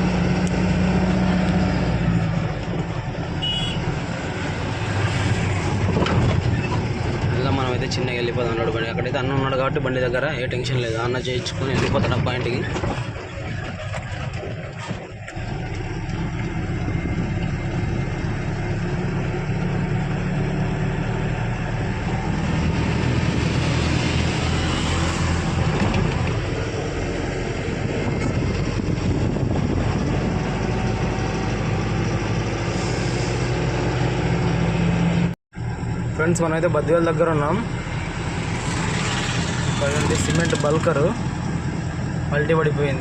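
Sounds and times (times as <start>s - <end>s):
road and wind noise: 0.0s - 43.0s
truck engine drone: 0.0s - 43.0s.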